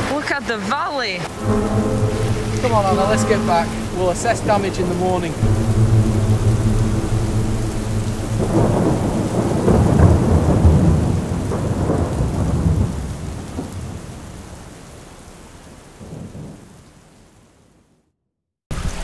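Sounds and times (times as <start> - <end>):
steady rain: 0.0 - 18.0, 18.7 - 19.0
thunder rumbling: 1.2 - 14.3.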